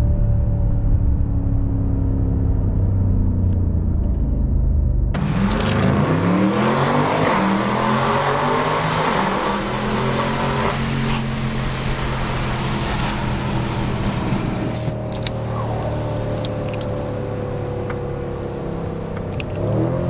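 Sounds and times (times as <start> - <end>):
car engine revving: 5.1 - 20.0.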